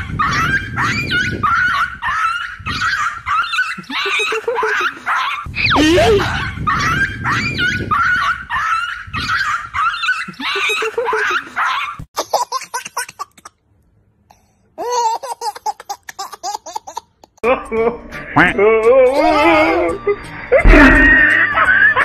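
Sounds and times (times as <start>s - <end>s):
baby laughing: 0.0s - 13.6s, 14.8s - 17.6s.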